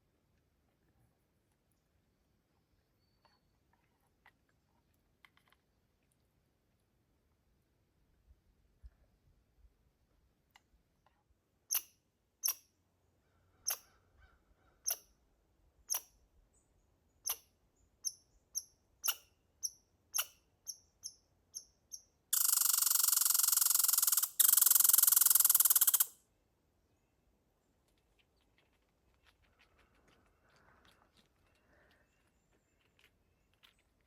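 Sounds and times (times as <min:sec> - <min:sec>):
squirrel chirping: 0:11.7 - 0:12.6, 0:13.7 - 0:13.9, 0:14.9 - 0:15.1, 0:15.9 - 0:16.1, 0:17.2 - 0:26.2
squirrel rattling trills: 0:18.0 - 0:26.1.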